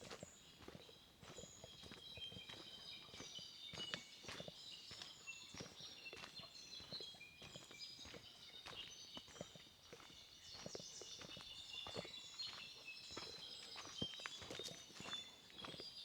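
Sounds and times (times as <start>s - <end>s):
faint footsteps walking: 0.0s - 15.8s.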